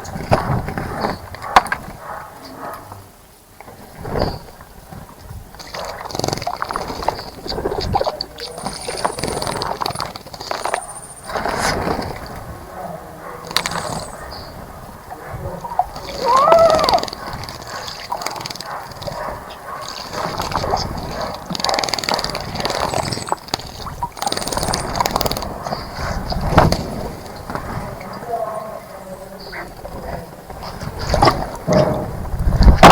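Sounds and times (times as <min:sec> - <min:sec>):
birds splashing in water: 0:03.6 - 0:28.9
rising and falling animal call: 0:15.6 - 0:17.2.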